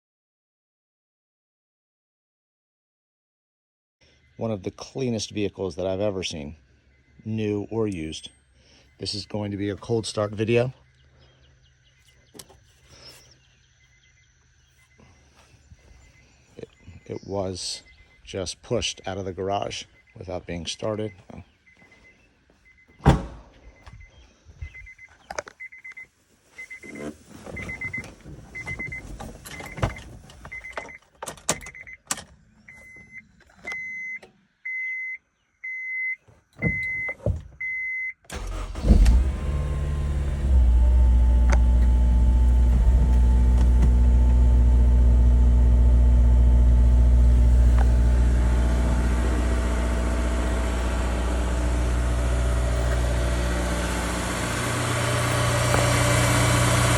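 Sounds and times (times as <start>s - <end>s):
car warning chime beeping: 16.0s - 23.1s, 23.7s - 38.8s
clicks and knocks in car cabin: 36.6s - 37.7s
car engine cranking and idling: 38.3s - 56.9s.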